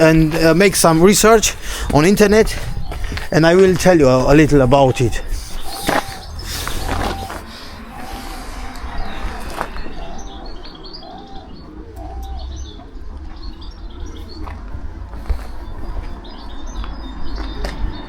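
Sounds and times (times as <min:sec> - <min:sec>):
small birds chirping: 0:00.0 - 0:18.0
low cooing call: 0:04.1 - 0:15.0.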